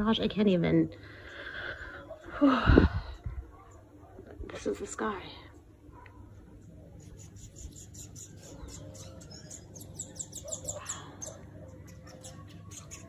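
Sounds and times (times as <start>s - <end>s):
birds chirping: 6.5s - 13.0s.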